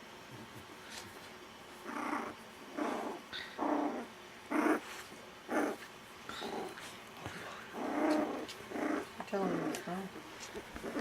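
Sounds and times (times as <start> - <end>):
puppy growling: 1.8 - 7.0, 7.6 - 11.0.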